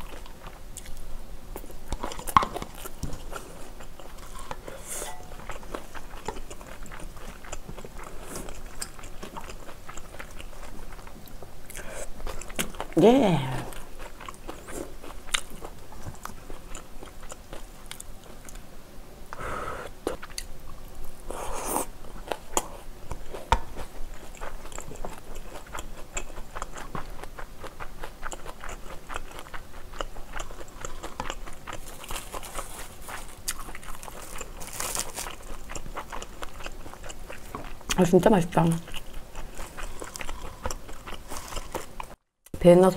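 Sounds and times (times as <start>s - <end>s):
chewing food: 0.0s - 18.7s, 19.3s - 42.2s
dried seaweed crackling: 30.9s - 36.4s.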